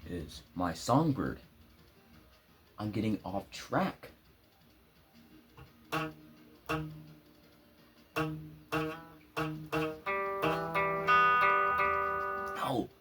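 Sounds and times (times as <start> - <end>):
guitar chord stabs: 5.6 - 7.2, 8.1 - 12.8.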